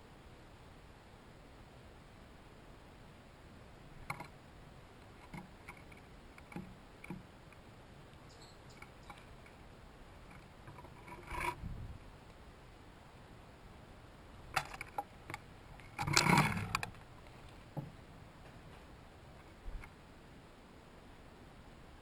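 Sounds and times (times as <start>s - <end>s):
small taps and scrapes at feeder: 5.0s - 7.6s, 10.2s - 11.6s
faint bird chirp: 8.1s - 9.4s.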